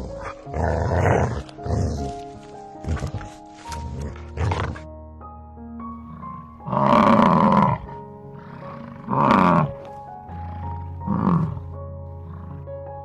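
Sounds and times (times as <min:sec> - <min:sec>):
bison bellowing: 0:00.0 - 0:04.9, 0:06.0 - 0:12.8
background music: 0:00.0 - 0:13.0.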